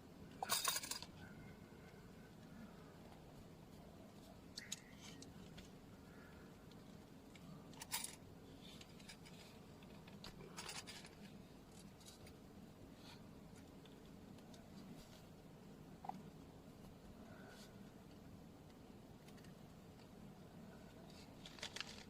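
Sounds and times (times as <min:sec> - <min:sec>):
small metallic jingles: 0:00.4 - 0:01.2.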